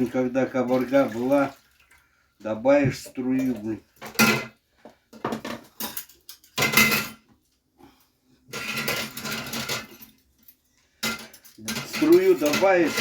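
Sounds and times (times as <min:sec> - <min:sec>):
clinking and scraping on hard surface: 0:03.0 - 0:07.4, 0:08.5 - 0:13.0.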